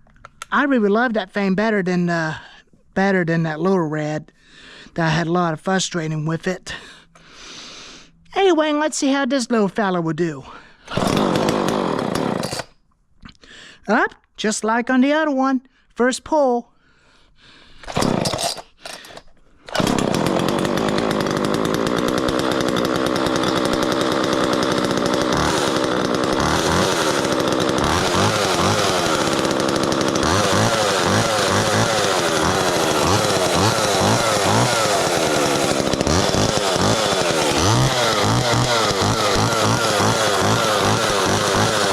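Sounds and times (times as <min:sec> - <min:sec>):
chainsaw starting and revving: 0:10.9 - 0:12.8, 0:17.8 - 0:41.9.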